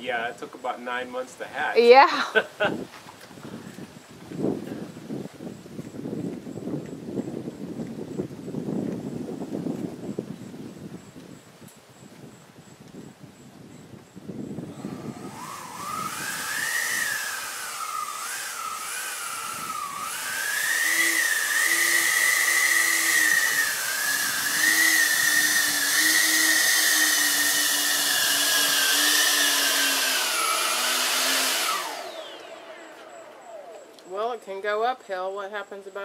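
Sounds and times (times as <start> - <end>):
electric fans whining: 12.3 - 35.3.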